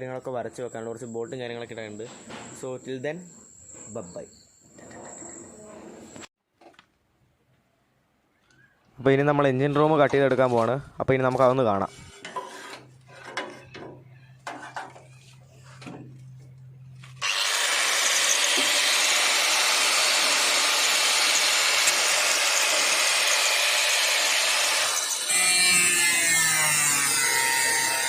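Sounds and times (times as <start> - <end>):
power tool cutting sheet metal: 17.2 - 28.0.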